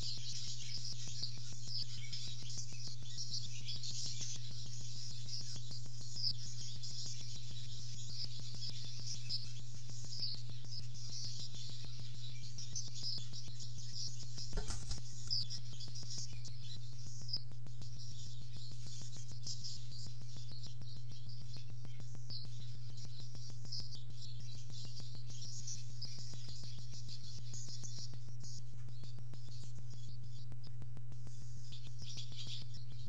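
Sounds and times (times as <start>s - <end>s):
faint bird chirping: 0.0s - 33.0s
low electrical hum: 14.4s - 15.5s
brief knock: 14.5s - 15.0s.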